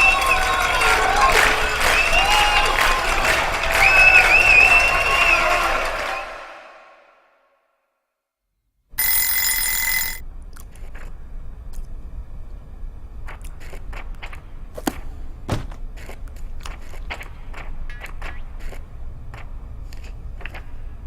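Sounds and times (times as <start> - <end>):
loud bell-like ring: 9.0 - 10.2
low steady rumble: 10.2 - 21.0.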